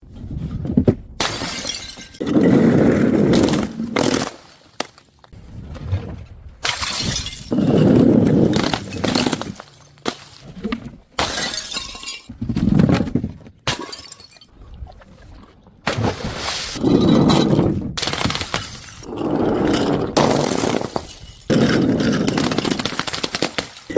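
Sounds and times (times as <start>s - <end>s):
glass bottles shattering: 1.2s - 2.4s, 6.6s - 10.4s, 11.2s - 12.4s, 13.7s - 14.5s, 18.0s - 19.1s, 20.2s - 23.9s.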